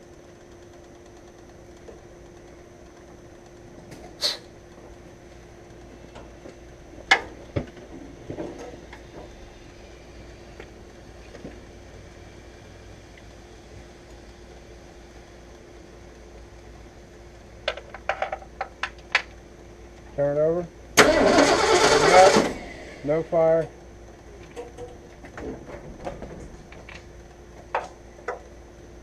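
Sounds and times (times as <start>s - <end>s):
steady hum: 0.0s - 29.0s
sharp knocks and clatters: 17.7s - 19.0s.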